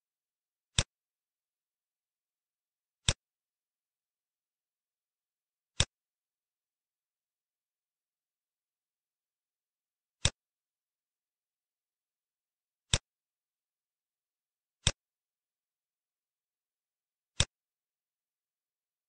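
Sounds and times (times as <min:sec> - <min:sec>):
computer mouse clicks: 0:00.7 - 0:00.9, 0:14.8 - 0:15.0.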